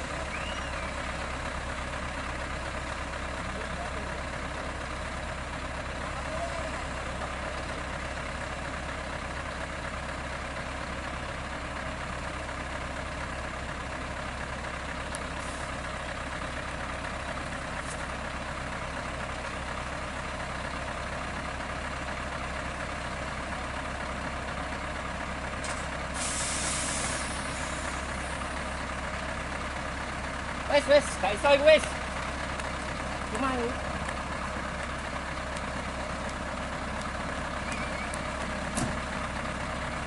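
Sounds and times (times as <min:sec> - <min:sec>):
truck diesel engine running: 0:00.0 - 0:40.0
air brake hiss: 0:26.1 - 0:27.8.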